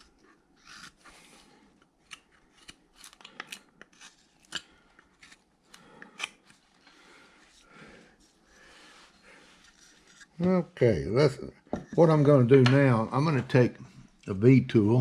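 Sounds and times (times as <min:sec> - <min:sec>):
carving blade cutting wood: 0:00.0 - 0:01.3, 0:02.0 - 0:06.6, 0:09.5 - 0:10.4
soft scraping on wood: 0:07.4 - 0:10.7.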